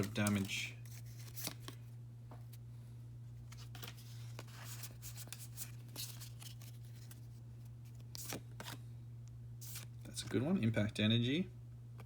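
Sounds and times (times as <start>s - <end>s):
trading cards flicking: 0.0s - 1.8s
steady low hum: 0.0s - 12.0s.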